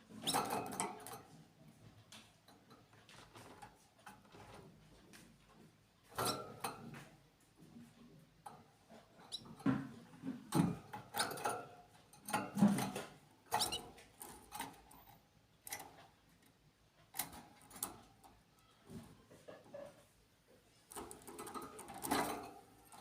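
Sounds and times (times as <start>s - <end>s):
small birds chirping: 13.5s - 14.0s
clicks and scratching: 20.7s - 23.0s.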